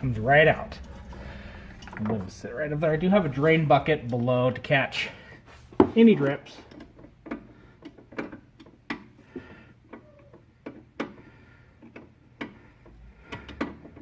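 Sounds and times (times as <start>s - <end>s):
fluid dripping into bucket: 0.0s - 3.4s.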